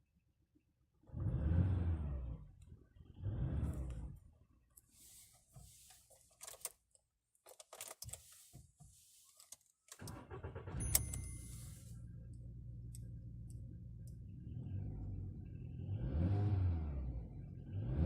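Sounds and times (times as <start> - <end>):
car engine starting and idling: 1.0 - 6.7, 9.9 - 18.0.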